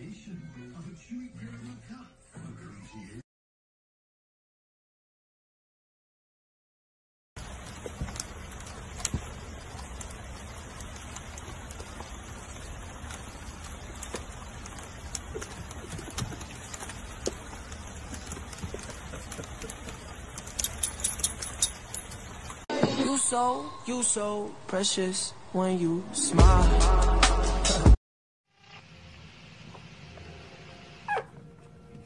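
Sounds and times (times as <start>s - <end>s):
rain on wooden deck: 7.4s - 22.7s.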